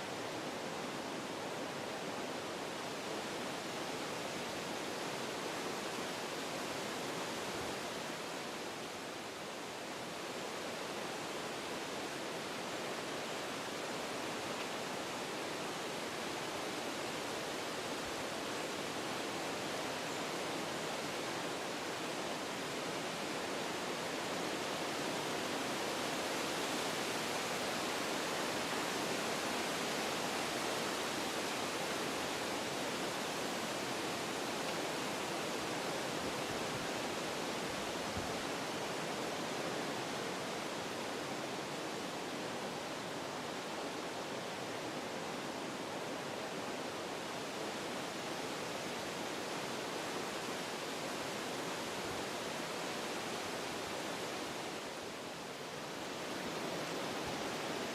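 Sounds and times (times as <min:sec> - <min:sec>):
wind through trees: 0:00.0 - 0:57.9.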